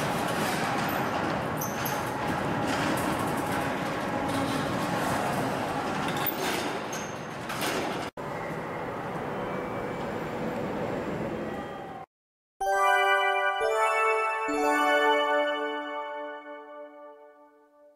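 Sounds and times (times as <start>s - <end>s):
train rumbling through station: 0.0s - 12.1s.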